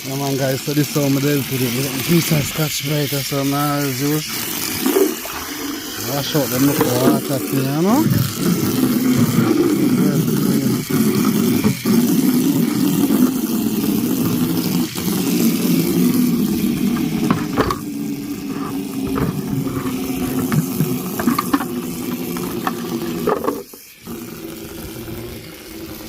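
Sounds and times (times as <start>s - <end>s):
scouring pad scrubbing plastic: 0.0s - 26.0s.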